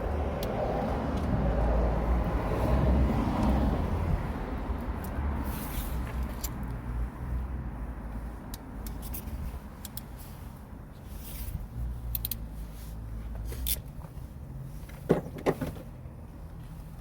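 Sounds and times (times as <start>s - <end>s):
clicks and handling noises: 8.5s - 10.2s.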